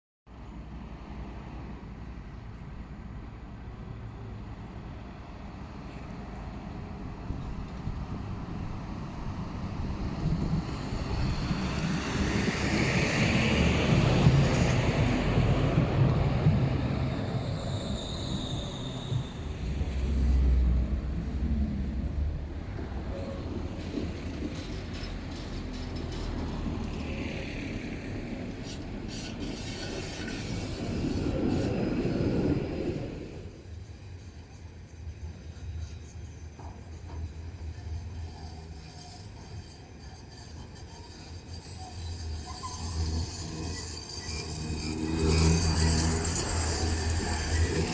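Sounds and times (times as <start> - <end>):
tram rumbling on rails: 0.3 - 47.9
high wheel squeal: 16.8 - 21.6, 28.6 - 47.9.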